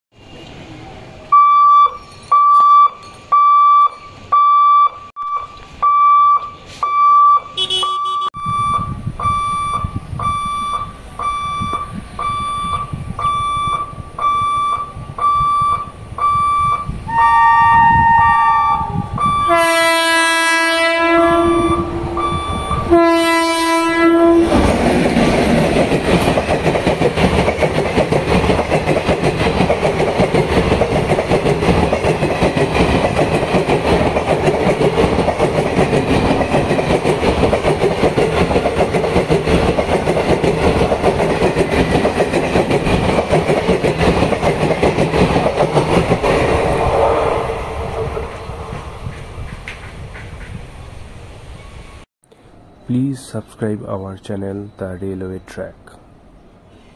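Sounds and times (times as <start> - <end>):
level crossing warning beeper: 1.3 - 24.4
locomotive horn: 7.6 - 8.4, 17.1 - 24.6
train passing with rushing rumble: 8.4 - 56.9
wheels clattering over rail joints: 24.4 - 46.7.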